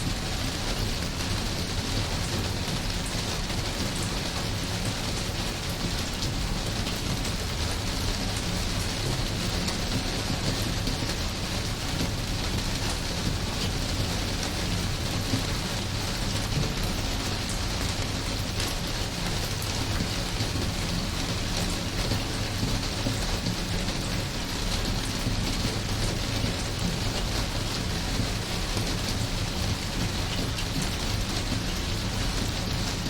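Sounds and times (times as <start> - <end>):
steady rain hiss: 0.0 - 33.0.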